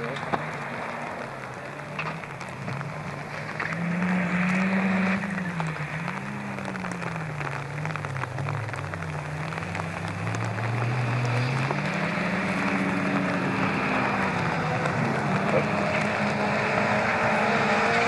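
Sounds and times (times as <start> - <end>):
crackly hiss: 0.0 - 16.7
distant rally car engine revving: 0.0 - 18.0.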